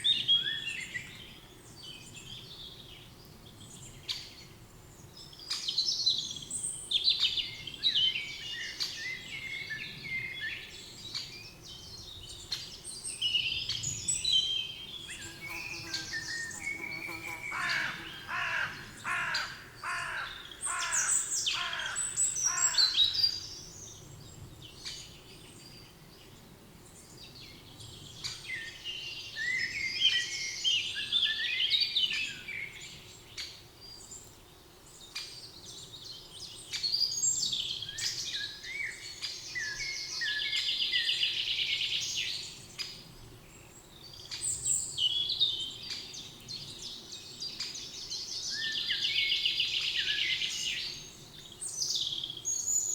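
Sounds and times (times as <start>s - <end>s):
birds falling calls: 15.1s - 22.7s.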